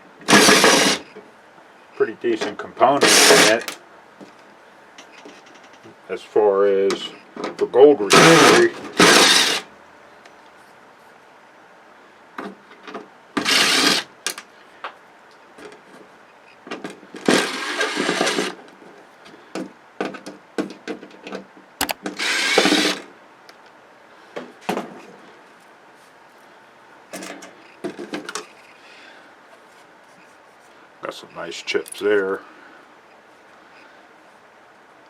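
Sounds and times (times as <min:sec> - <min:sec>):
power tool running: 0:00.2 - 0:01.0, 0:03.0 - 0:03.6, 0:08.1 - 0:09.7, 0:13.4 - 0:14.1, 0:21.8 - 0:23.1
clicks and knocks of parts handled: 0:20.0 - 0:22.1, 0:31.8 - 0:32.1.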